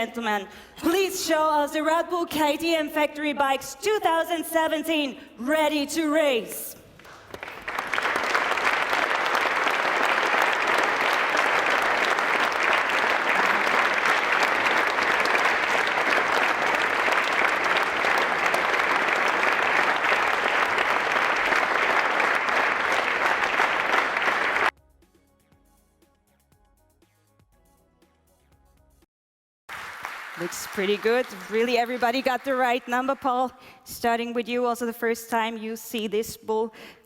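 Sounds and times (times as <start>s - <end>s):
audience applauding: 7.0s - 24.7s, 29.7s - 33.4s.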